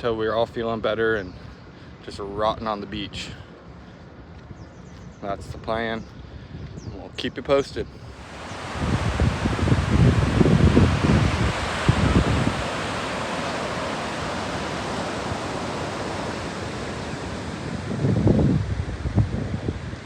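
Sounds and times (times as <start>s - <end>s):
wind buffeting microphone: 3.1s - 20.0s
ocean surf on a beach: 8.1s - 20.0s.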